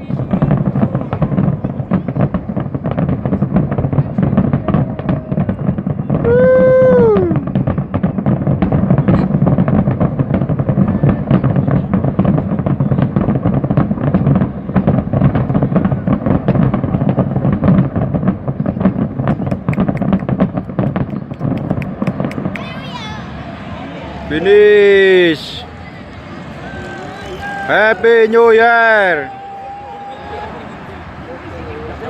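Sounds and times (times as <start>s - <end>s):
fireworks bangs and crackles: 0.0s - 32.0s.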